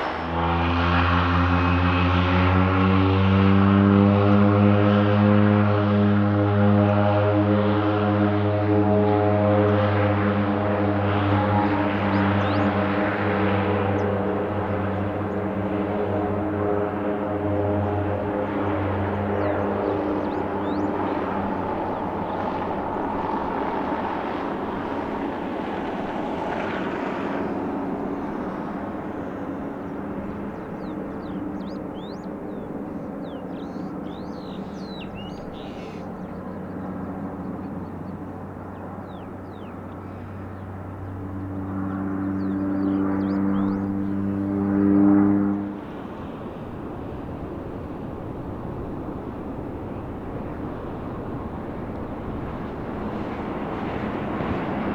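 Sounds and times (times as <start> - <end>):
aircraft engines humming: 0.0 - 54.9
small birds chirping: 11.2 - 13.0, 19.1 - 21.2, 28.2 - 41.2.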